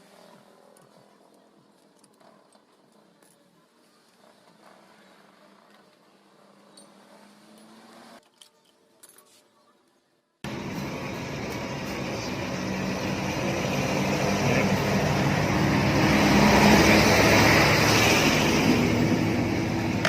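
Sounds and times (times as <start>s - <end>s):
vehicle engine passing by: 11.9s - 20.0s.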